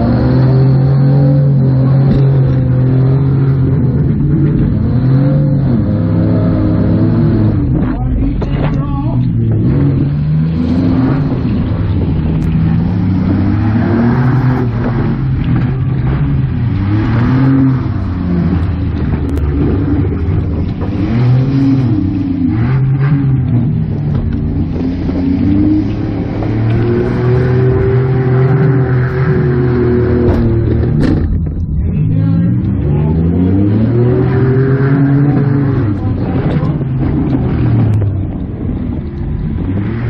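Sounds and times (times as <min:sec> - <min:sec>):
van engine revving: 0:00.0 - 0:40.0.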